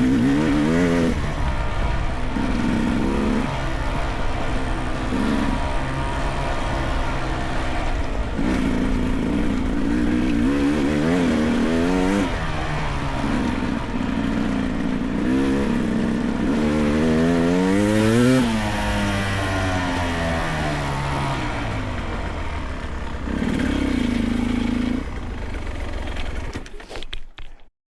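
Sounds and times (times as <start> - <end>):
dirt bike engine revving: 0.0 - 26.6.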